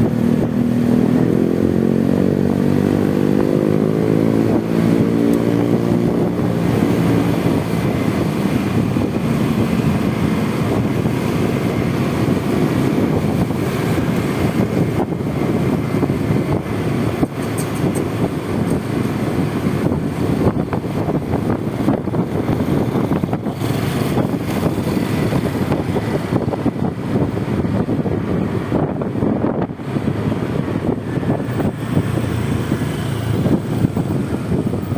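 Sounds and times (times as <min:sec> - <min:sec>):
scooter engine running: 0:00.0 - 0:28.3, 0:30.4 - 0:34.9
wind and road noise: 0:00.0 - 0:34.9.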